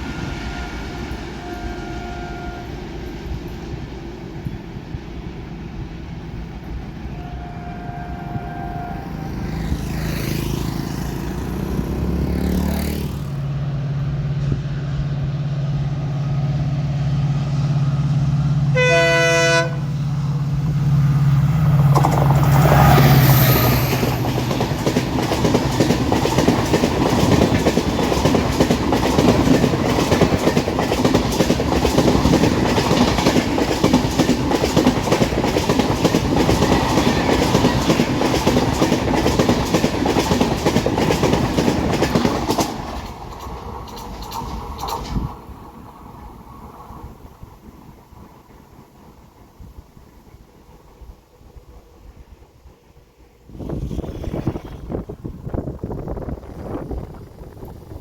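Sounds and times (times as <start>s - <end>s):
train horn: 0.0s - 3.1s, 7.0s - 9.8s, 18.6s - 20.3s
locomotive engine drone: 0.0s - 26.2s
train wheels clattering: 21.6s - 45.6s.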